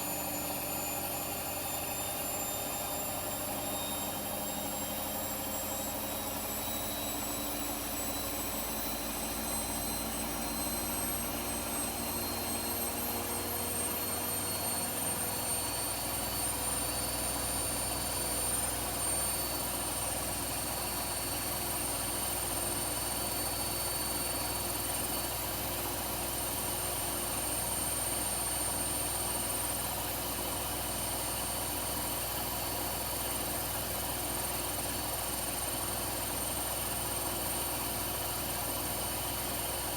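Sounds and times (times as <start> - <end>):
washing machine spinning: 0.0 - 27.4.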